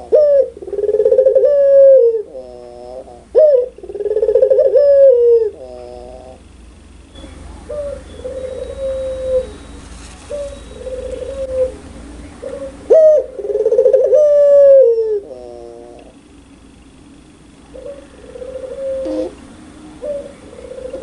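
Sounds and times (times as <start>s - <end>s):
dove cooing: 0.0s - 6.5s, 7.2s - 16.2s, 17.6s - 21.0s
faint high chirps: 7.1s - 12.8s.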